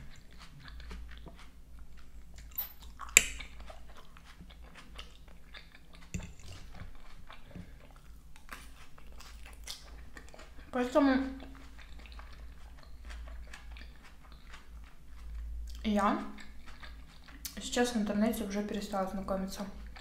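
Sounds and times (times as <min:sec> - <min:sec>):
chewing crunchy salad: 0:00.0 - 0:20.0
fork clinking on plate: 0:02.4 - 0:03.4, 0:06.2 - 0:06.6.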